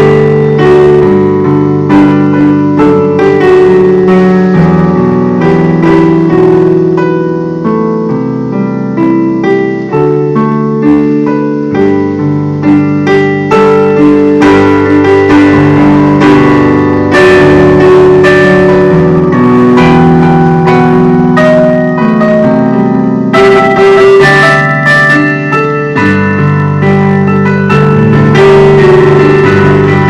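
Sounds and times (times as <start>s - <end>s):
slow piano melody: 0.0s - 30.0s.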